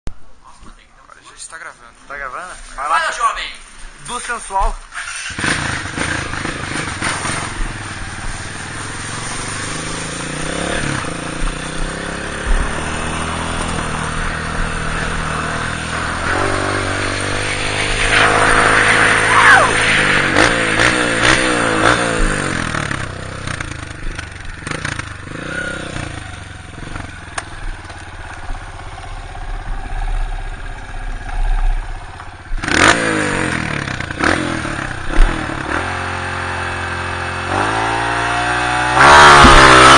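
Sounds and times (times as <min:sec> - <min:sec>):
dirt bike engine revving: 0:04.9 - 0:39.9
loud thump: 0:35.1 - 0:35.6, 0:39.2 - 0:39.9.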